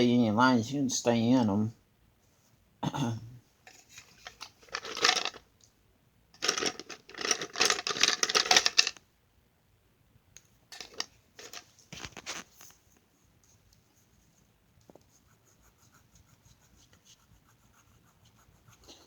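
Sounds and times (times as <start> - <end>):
colouring strokes scratching on paper: 13.2 - 19.0.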